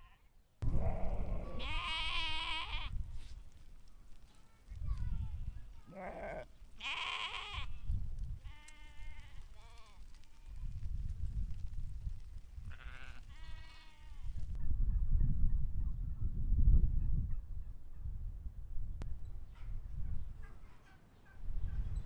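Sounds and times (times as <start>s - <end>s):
sheep bleating: 0.0s - 3.0s, 5.8s - 7.8s, 8.5s - 10.0s, 12.7s - 14.3s.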